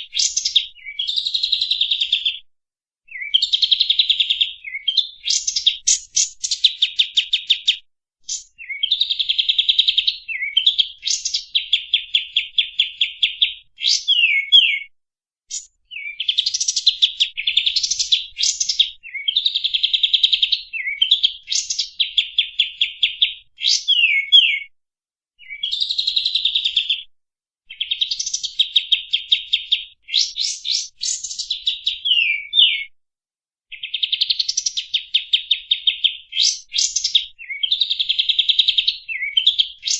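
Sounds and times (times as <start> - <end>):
songbird singing harsh stuttering notes: 3.1 - 14.9, 35.9 - 39.9.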